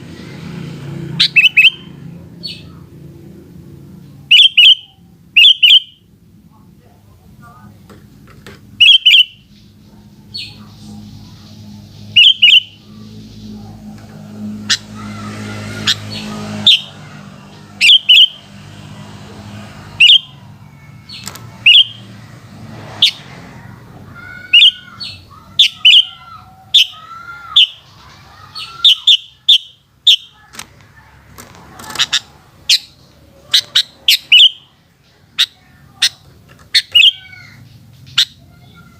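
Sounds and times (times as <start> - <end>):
bulbul sharp calls: 1.1 - 2.8, 4.3 - 6.1, 8.8 - 13.9, 14.5 - 18.4, 19.9 - 22.1, 24.1 - 30.7, 31.8 - 38.8.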